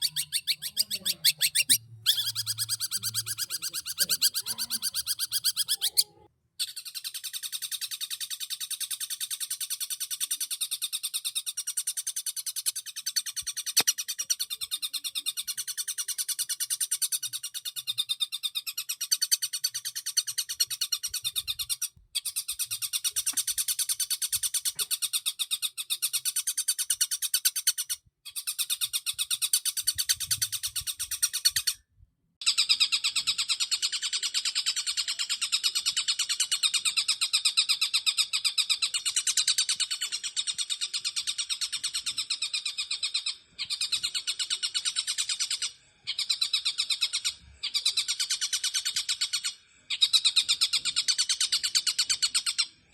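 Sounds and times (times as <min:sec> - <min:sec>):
shrike singing chattering song: 0:00.0 - 0:06.8.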